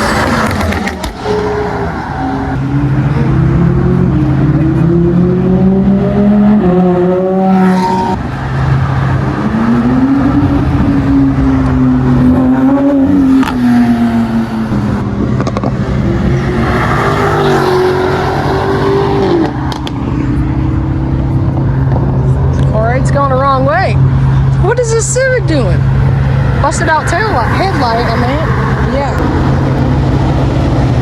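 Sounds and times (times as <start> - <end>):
car engines revving past: 0.0 - 31.0
low engine hum: 8.2 - 31.0.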